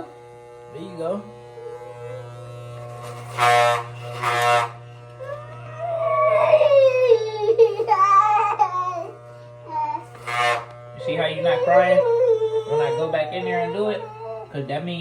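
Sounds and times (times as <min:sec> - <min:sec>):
electric hair clippers humming: 0:00.0 - 0:15.0
young boy crying: 0:05.2 - 0:10.1, 0:11.2 - 0:14.7.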